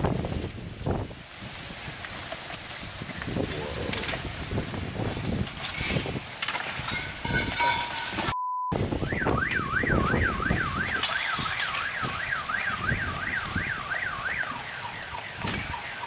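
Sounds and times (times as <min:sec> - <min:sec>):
car alarm wailing: 0:08.4 - 0:16.0.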